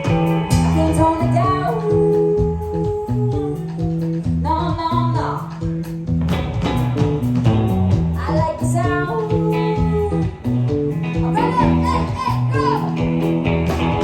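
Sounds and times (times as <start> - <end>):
person singing: 0.0 - 5.5, 8.2 - 13.1
live rock band playing: 0.0 - 14.0.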